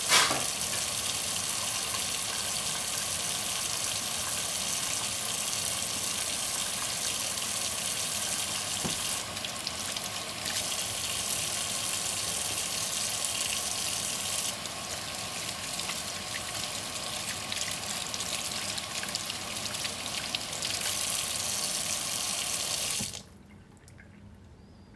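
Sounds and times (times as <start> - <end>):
tap water running into sink: 0.0 - 23.3
tap shutting off: 0.1 - 0.6, 8.8 - 9.2.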